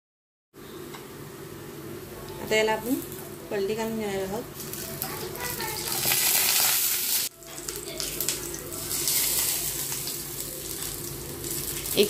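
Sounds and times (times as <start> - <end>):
cutlets sizzling in oil: 4.5 - 12.0.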